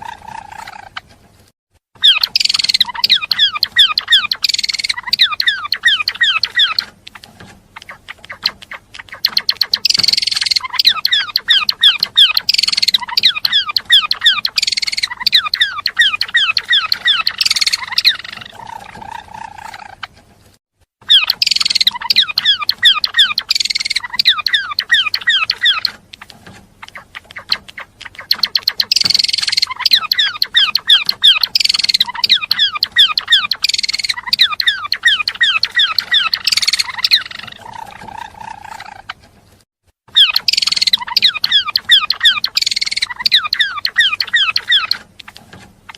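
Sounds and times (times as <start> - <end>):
bird twittering chirps: 2.0 - 20.1, 21.0 - 39.2, 40.1 - 45.9.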